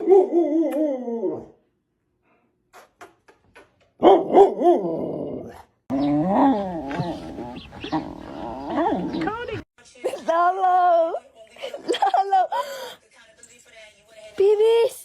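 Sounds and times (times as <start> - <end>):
dog barking: 4.0 - 4.8
dog howling: 4.3 - 9.4.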